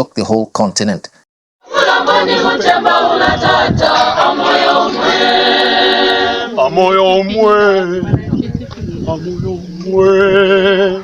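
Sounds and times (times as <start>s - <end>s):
choir singing in harmony: 1.6s - 7.4s.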